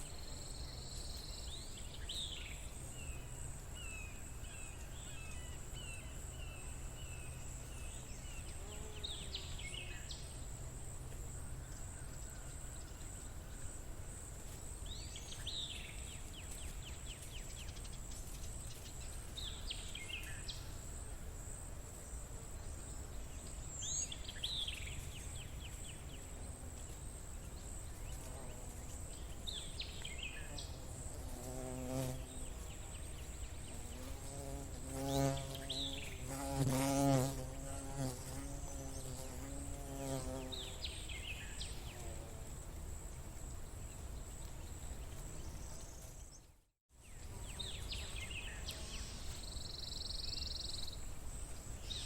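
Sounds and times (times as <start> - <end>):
bird song: 0.0 - 10.4, 43.8 - 52.0.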